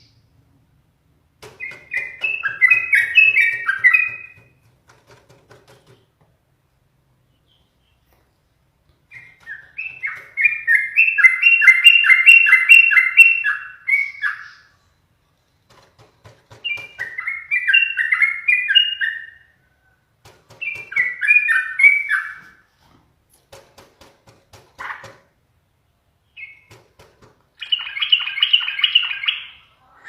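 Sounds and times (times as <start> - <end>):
bulbul singing: 1.4 - 4.6, 9.1 - 14.9, 16.3 - 19.7, 20.5 - 22.6, 26.2 - 26.8, 27.6 - 29.7.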